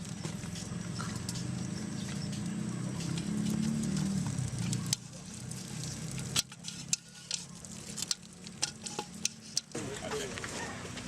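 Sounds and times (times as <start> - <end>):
fire crackling and popping: 0.0 - 11.0.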